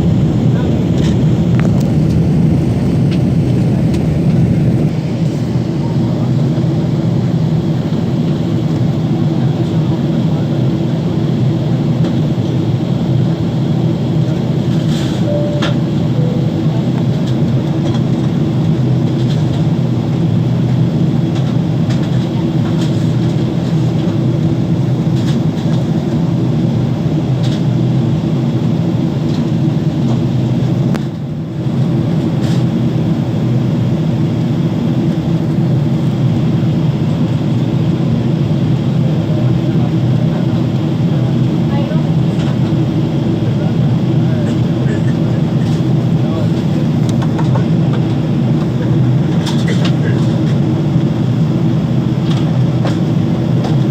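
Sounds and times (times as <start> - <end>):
airplane cabin rumble: 0.0 - 53.9.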